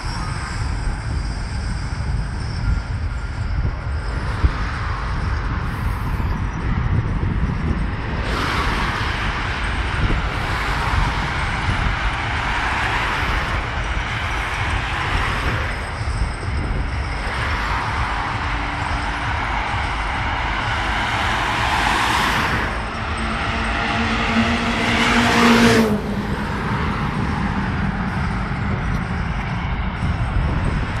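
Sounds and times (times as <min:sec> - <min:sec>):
low rumble: 0:00.0 - 0:31.0
car engine revving hard: 0:17.0 - 0:28.3.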